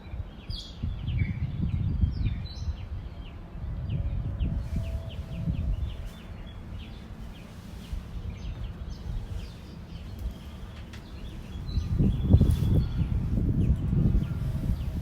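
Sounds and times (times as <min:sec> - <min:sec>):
low rumble: 0:00.8 - 0:15.0
small birds chirping: 0:05.0 - 0:15.0.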